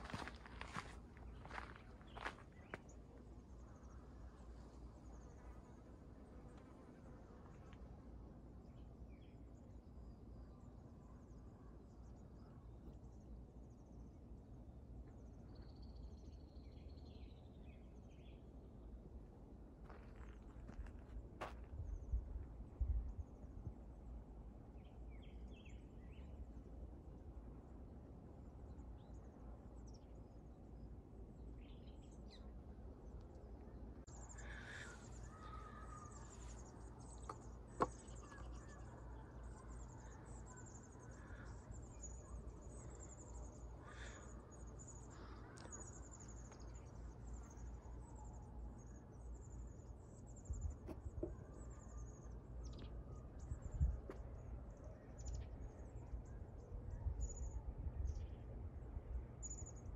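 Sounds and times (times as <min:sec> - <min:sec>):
birds chirping: 0:00.0 - 0:07.9, 0:28.5 - 0:58.6
low wind rumble on microphone: 0:20.6 - 0:30.2, 0:50.4 - 0:51.8, 0:52.7 - 0:59.9.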